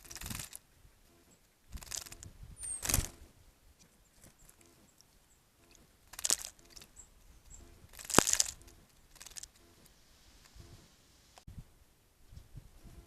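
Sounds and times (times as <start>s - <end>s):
birds splashing in water: 0.0s - 0.6s, 1.8s - 2.2s, 5.6s - 7.0s, 7.9s - 9.7s.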